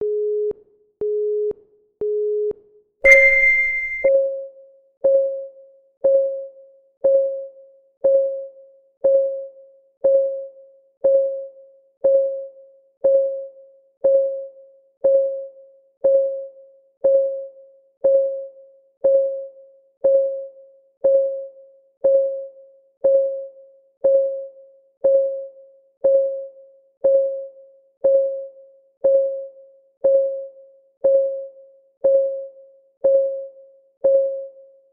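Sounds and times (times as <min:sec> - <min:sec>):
electronic clock tick: 0:03.1 - 0:04.1
higher beep: 0:03.1 - 0:04.1
short low beeps: 0:03.1 - 0:04.1.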